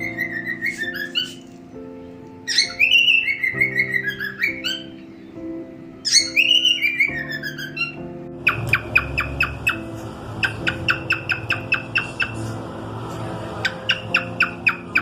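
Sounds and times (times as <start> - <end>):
cockatiel chirping: 0.0 - 1.4, 2.5 - 5.0, 6.0 - 12.6, 13.6 - 15.0.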